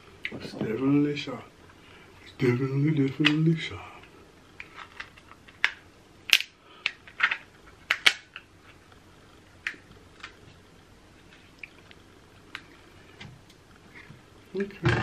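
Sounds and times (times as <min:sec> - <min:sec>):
crab shell cracking and snapping: 0:04.6 - 0:08.5.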